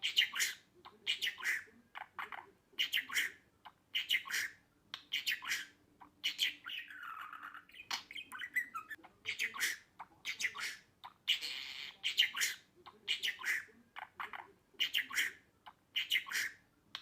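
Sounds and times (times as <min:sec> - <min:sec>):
budgerigar chirping and squawking: 0:00.0 - 0:17.0.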